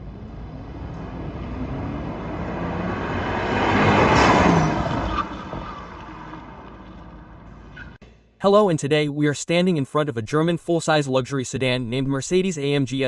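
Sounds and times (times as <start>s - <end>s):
car driving past: 0.0s - 7.9s.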